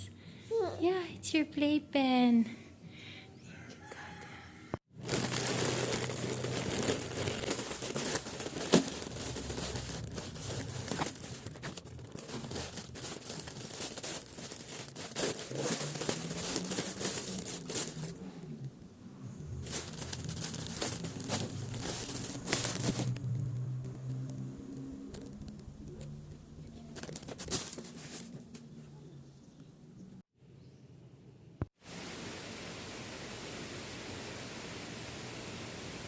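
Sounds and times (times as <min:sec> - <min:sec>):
crinkling and rustling: 0:04.8 - 0:18.7, 0:19.4 - 0:28.8.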